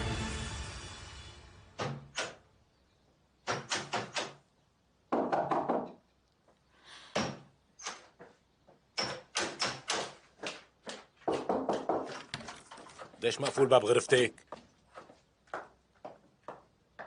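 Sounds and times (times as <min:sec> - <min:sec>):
knocking on a door: 0:05.1 - 0:06.0, 0:11.3 - 0:12.2.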